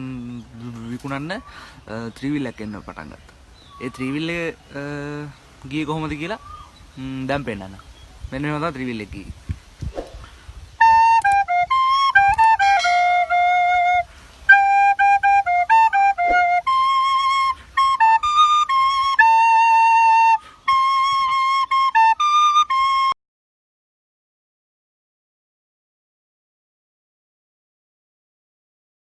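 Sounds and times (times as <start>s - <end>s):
flute-like instrument melody: 10.6s - 23.2s.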